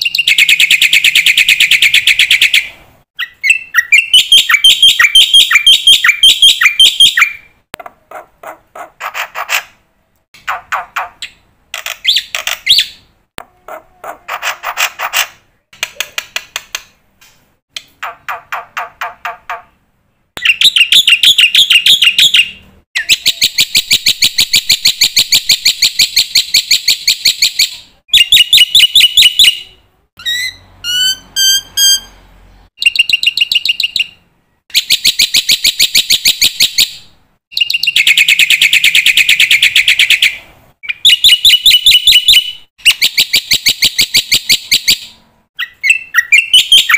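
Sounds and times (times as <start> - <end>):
whistled bird notes: 0.0 - 7.5, 37.5 - 46.9
myna bird singing: 0.0 - 9.6, 10.4 - 15.2, 17.8 - 46.9.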